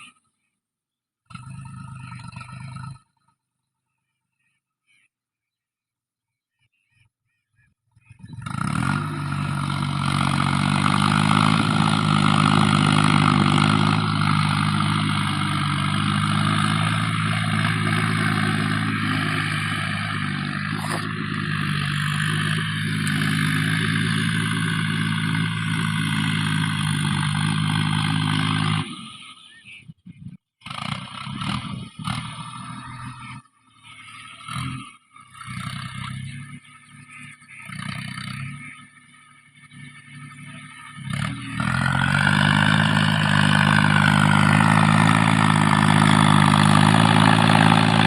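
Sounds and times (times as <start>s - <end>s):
tractor diesel engine running: 8.1s - 48.0s.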